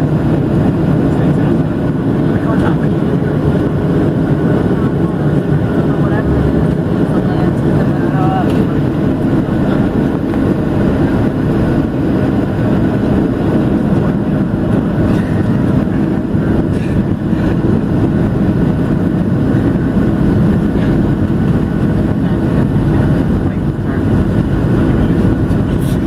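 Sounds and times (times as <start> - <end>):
airplane cabin jet engine drone: 0.0 - 26.0.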